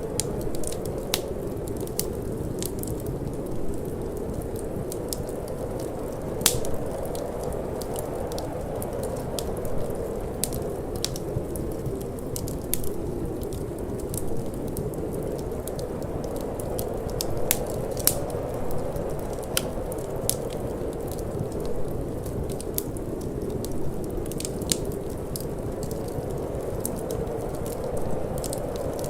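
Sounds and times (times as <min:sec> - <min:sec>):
low rush of wind: 0:00.0 - 0:29.0
wood fire crackling and popping: 0:00.0 - 0:29.0.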